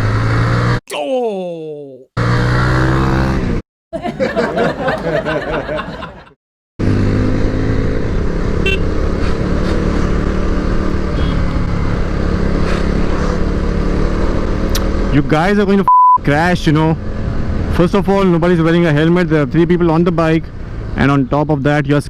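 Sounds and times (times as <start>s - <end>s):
motorcycle engine: 0.0s - 0.8s, 2.2s - 3.6s, 6.8s - 15.2s
traffic noise: 2.2s - 15.5s, 16.3s - 22.0s
wind: 2.2s - 22.0s.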